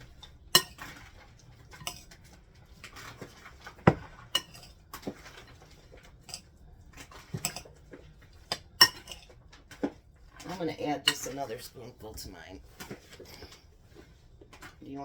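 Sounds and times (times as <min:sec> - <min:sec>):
spoon scraping a bowl: 0:00.5 - 0:02.2, 0:02.9 - 0:09.4.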